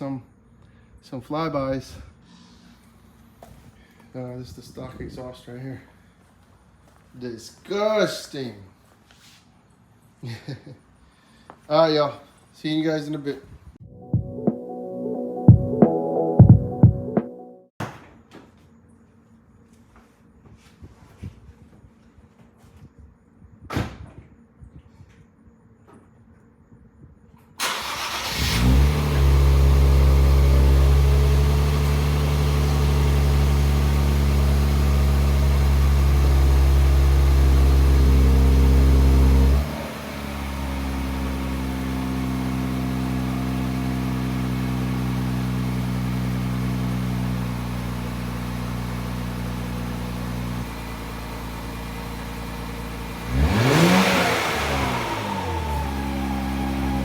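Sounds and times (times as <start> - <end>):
engine revving: 27.6 - 51.0, 52.0 - 57.0
car engine starting and idling: 27.6 - 57.0.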